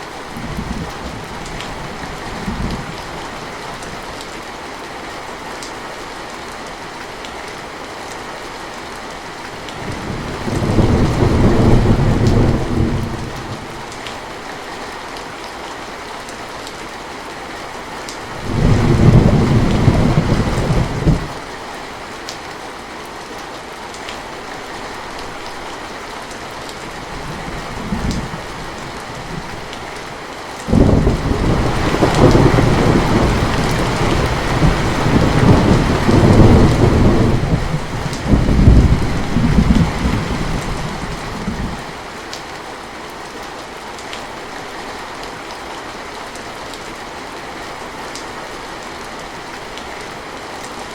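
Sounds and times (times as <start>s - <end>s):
steady rain: 0.0s - 50.9s
thunder rumbling: 9.8s - 13.9s, 18.4s - 21.4s, 30.7s - 41.9s.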